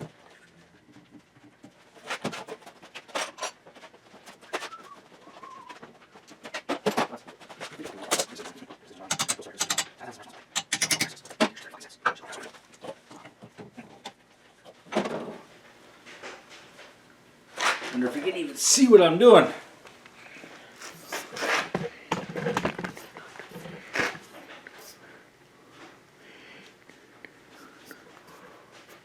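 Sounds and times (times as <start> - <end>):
hand tools knocking on metal: 9.1 - 10.0, 10.6 - 11.3.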